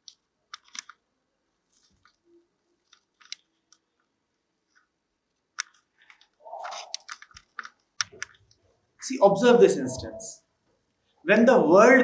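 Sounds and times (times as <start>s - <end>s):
handling or mouth noises: 6.5s - 7.3s.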